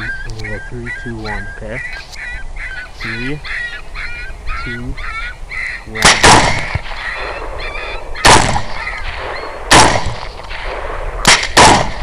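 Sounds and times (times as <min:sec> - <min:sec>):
faint honking calls: 0:00.0 - 0:06.1
gunshots: 0:06.0 - 0:12.0.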